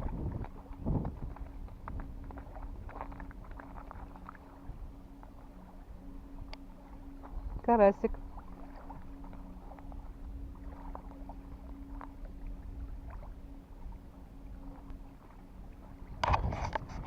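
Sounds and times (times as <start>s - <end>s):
low motor drone: 0.0s - 17.0s
low rumble: 0.0s - 17.0s
faint ticks: 6.4s - 7.4s.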